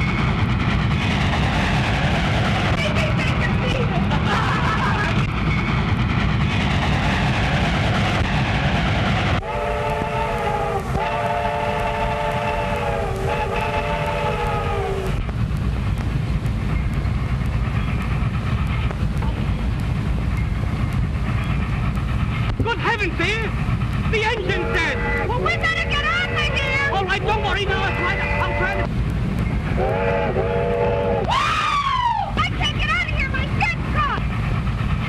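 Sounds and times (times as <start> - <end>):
train rumbling: 0.0 - 35.0
train whistle: 9.4 - 15.2, 24.4 - 28.9, 29.8 - 32.3.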